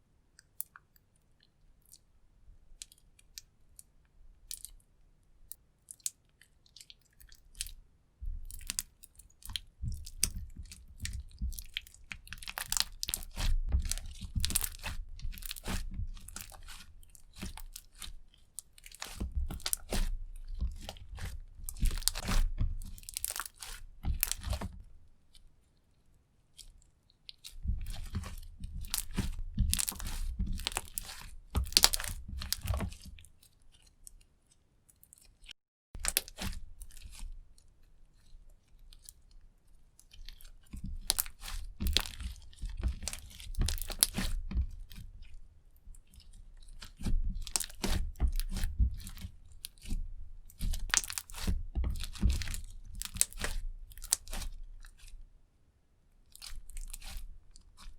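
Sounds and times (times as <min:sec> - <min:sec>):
slime squishing and popping: 0:08.4 - 0:24.7, 0:27.3 - 0:33.2, 0:36.0 - 0:37.2, 0:40.2 - 0:45.0, 0:46.2 - 0:49.9, 0:50.5 - 0:55.0, 0:56.3 - 0:57.2.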